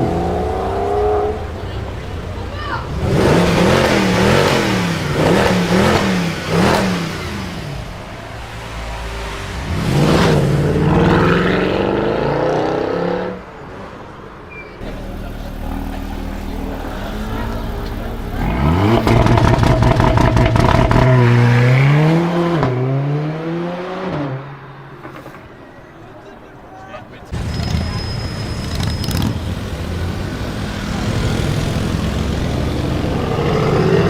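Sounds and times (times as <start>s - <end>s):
car engine revving loudly: 0.0s - 1.7s, 2.9s - 13.4s, 14.8s - 24.4s, 27.4s - 34.0s
exhaust crackling: 0.0s - 12.3s, 14.8s - 22.8s, 27.2s - 34.0s.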